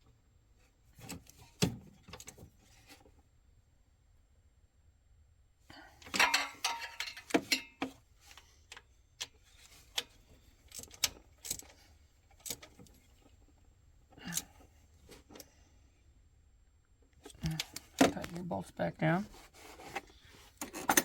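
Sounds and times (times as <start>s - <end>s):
metal tools and bolts clinking: 6.0s - 8.0s, 20.6s - 21.0s.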